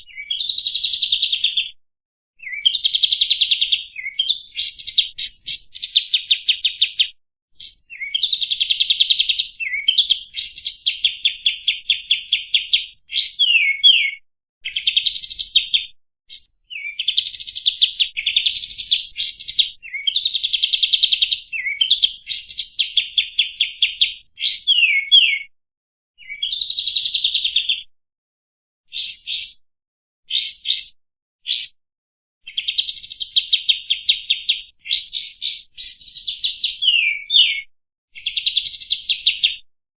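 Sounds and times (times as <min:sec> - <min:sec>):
bulbul chattering song: 0:28.9 - 0:29.6, 0:30.3 - 0:31.8, 0:32.5 - 0:36.3.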